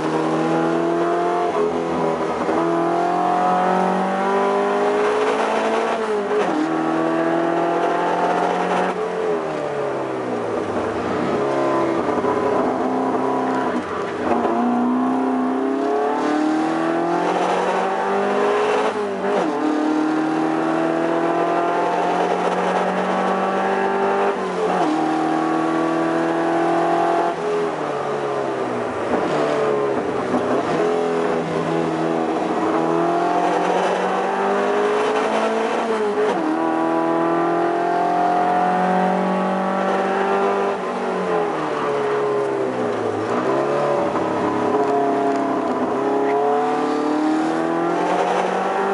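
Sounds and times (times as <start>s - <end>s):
race car engine revving: 0.0s - 48.9s.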